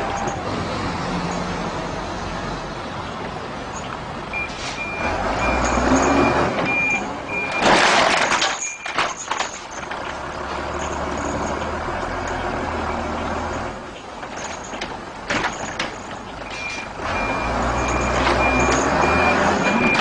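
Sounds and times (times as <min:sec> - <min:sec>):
truck engine running: 0:00.0 - 0:20.0
reversing alarm beeps: 0:04.4 - 0:07.7, 0:16.5 - 0:20.0.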